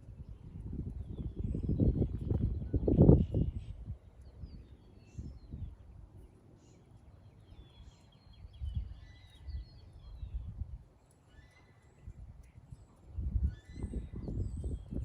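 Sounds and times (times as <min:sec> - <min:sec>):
small birds chirping: 0:00.1 - 0:15.0.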